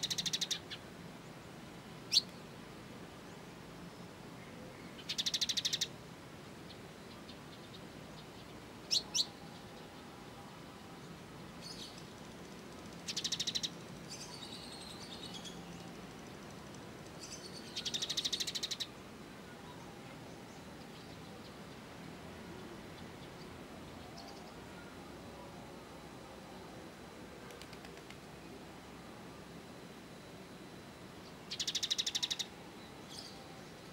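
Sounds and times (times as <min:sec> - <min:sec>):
songbird trilling: 0:00.0 - 0:00.8, 0:02.1 - 0:02.4, 0:05.0 - 0:05.9, 0:06.7 - 0:09.7, 0:13.0 - 0:15.9, 0:17.1 - 0:18.9, 0:31.2 - 0:33.8.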